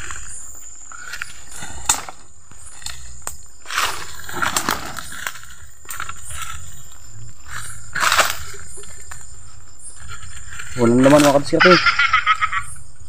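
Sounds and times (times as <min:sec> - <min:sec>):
dry leaves rustling and crunching: 0:02.6 - 0:12.2.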